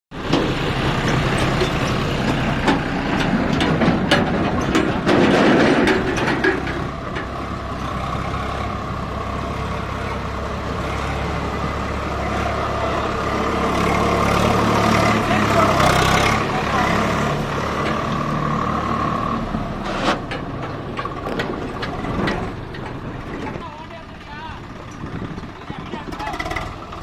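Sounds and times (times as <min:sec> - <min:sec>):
tractor diesel engine running: 0:00.1 - 0:27.0
sharp clicks and knocks: 0:00.3 - 0:07.6, 0:19.9 - 0:23.7.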